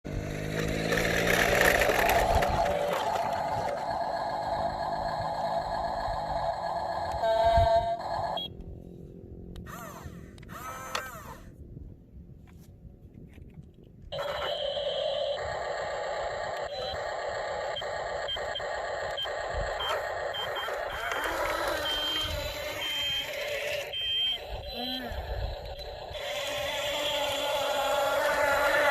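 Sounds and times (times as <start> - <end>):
toy electronic tone: 1.6 - 8.6, 14.2 - 28.9
short high beeps: 21.7 - 25.0.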